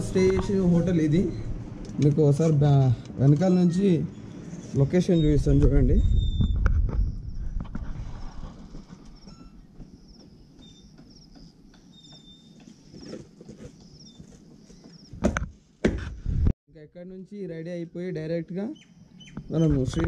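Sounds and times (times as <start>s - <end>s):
small birds chirping: 2.9s - 6.6s, 9.1s - 15.2s, 17.6s - 20.0s.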